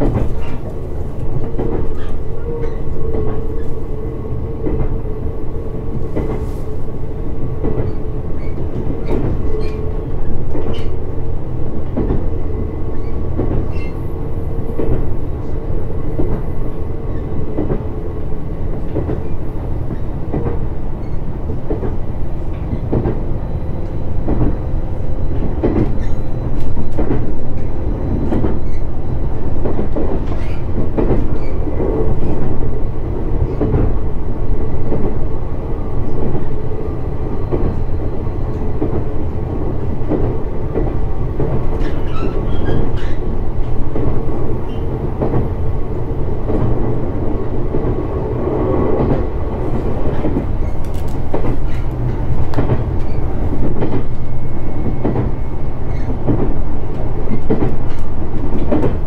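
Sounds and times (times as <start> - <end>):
rail joint clicks and knocks: 0.0 - 59.0
train wheels rumbling on rail: 0.0 - 59.0.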